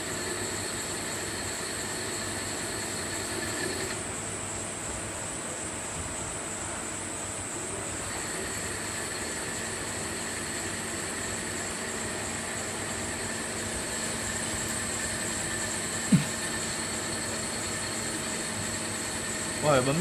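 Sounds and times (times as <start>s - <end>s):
machine tool whirring: 0.0s - 4.0s, 8.1s - 20.0s.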